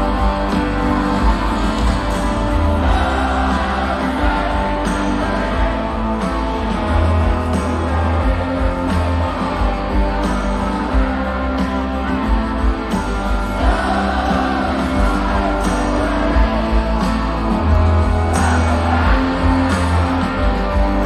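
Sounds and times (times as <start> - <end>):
bass guitar: 0.0 - 21.0
drums: 0.0 - 21.0
electric guitars: 0.0 - 21.0.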